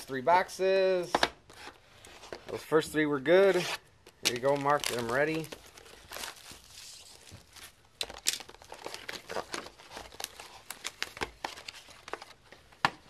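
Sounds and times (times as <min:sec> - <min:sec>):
packaging crinkling and rustling: 0:04.0 - 0:13.0
packaging tearing: 0:04.2 - 0:12.2.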